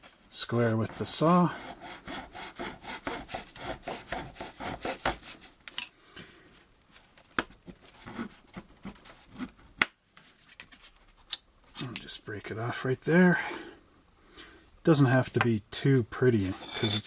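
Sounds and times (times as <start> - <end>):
hand saw cutting plastic: 0.7 - 5.4.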